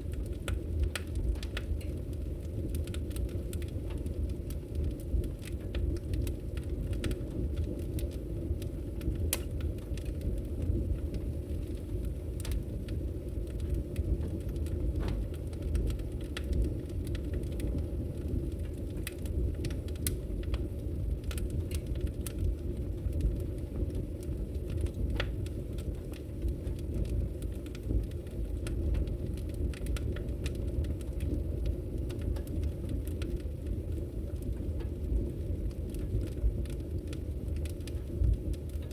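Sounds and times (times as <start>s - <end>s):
low fire rumble: 0.0s - 38.9s
wood fire crackling and popping: 0.0s - 38.9s.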